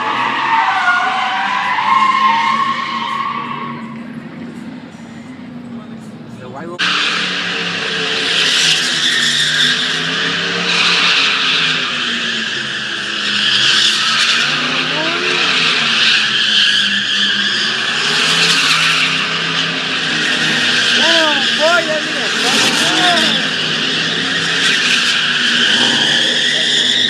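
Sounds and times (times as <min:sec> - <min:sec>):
truck engine revving hard: 0:00.0 - 0:04.2, 0:06.8 - 0:27.0
tires screeching on pavement: 0:00.0 - 0:27.0.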